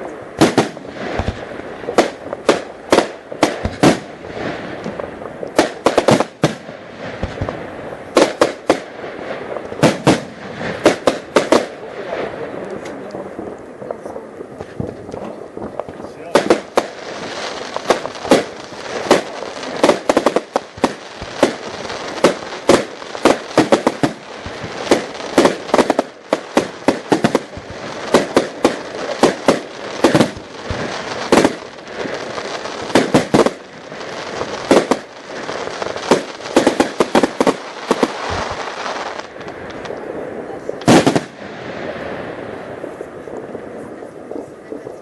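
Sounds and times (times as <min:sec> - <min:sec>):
continuous crackling: 0:00.0 - 0:45.0
firework bangs: 0:00.0 - 0:45.0.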